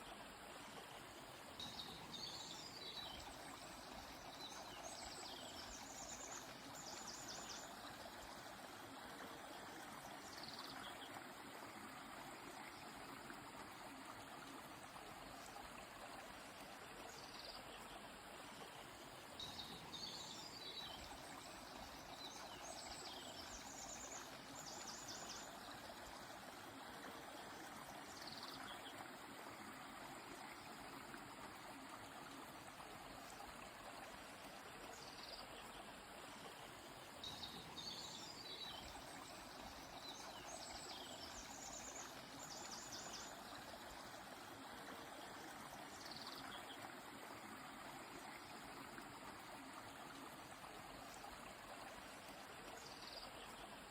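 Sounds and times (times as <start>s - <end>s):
flowing river: 0.0s - 53.9s.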